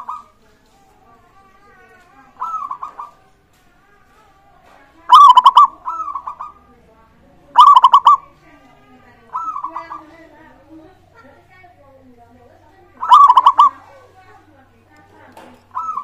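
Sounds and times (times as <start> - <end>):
doves cooing: 0.0 - 6.9, 7.5 - 11.0, 12.9 - 14.5, 15.4 - 16.0.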